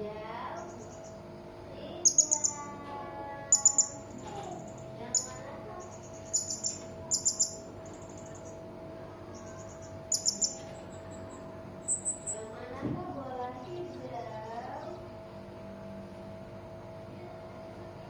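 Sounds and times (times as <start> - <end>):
faint steady hum: 0.0 - 18.0
parrot shrill chirps: 6.3 - 7.6, 10.1 - 10.6.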